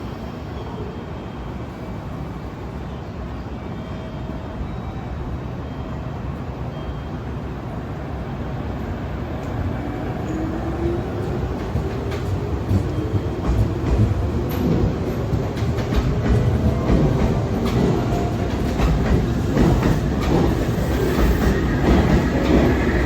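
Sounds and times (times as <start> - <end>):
electric train rumble: 7.3 - 23.0.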